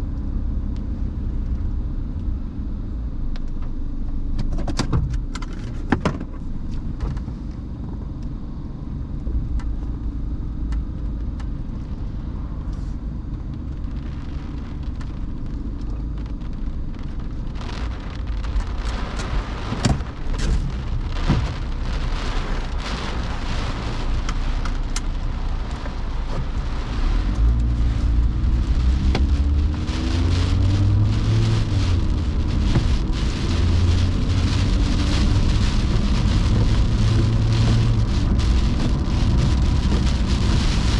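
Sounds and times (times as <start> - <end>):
car engine and road rumble: 0.0 - 40.9
rain hitting car: 9.2 - 40.9
pitched hum sliding: 17.6 - 40.9.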